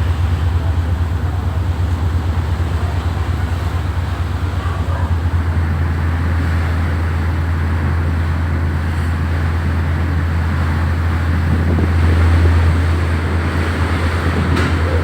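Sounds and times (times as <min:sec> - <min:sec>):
noisy rush: 0:00.0 - 0:07.8
low engine drone: 0:00.0 - 0:15.0.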